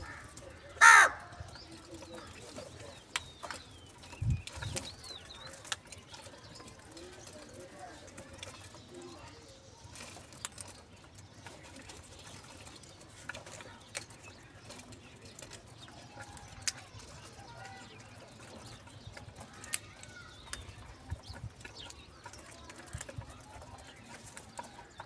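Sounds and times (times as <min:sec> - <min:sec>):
faint bird calls: 0:00.0 - 0:01.4.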